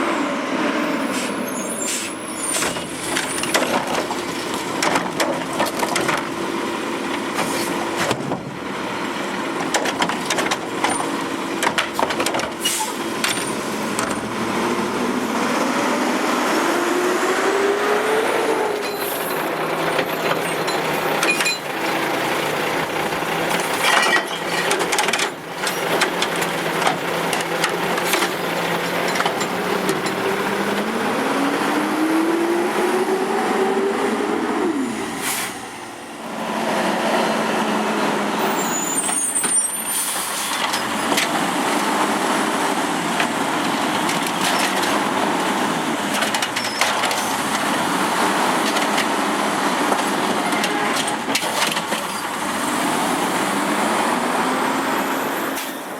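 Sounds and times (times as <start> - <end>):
diesel engine revving: 0.0 - 55.9
metal clanks and knocks: 23.2 - 30.4.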